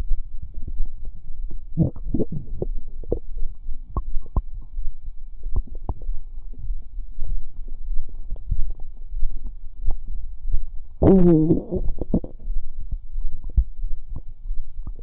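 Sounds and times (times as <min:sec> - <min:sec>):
stomach gurgling: 0:01.7 - 0:04.8, 0:05.5 - 0:15.0
squeaky gurgle: 0:11.0 - 0:12.5.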